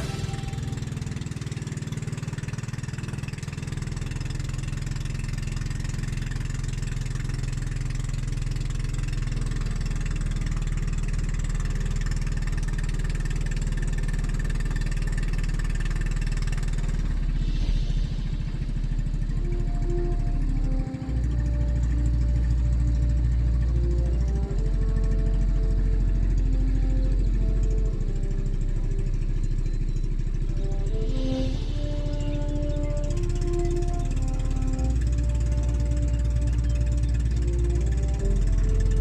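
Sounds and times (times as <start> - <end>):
brief hiss: 0.0 - 1.2, 17.0 - 19.4
small engine running: 0.0 - 39.0.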